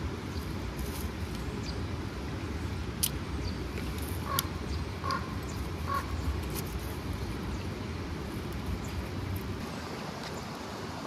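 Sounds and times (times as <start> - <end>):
bird calling: 4.2 - 6.4.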